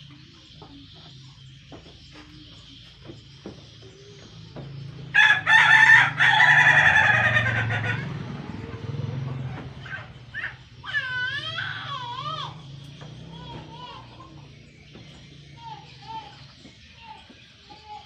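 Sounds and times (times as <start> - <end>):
soft wavering rooster calls: 5.1 - 8.5
rooster crowing: 5.1 - 8.7.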